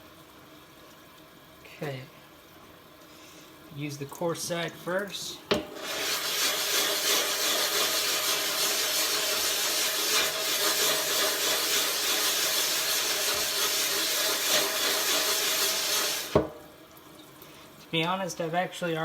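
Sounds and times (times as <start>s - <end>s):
sharpening stone scrubbing: 5.8s - 16.4s.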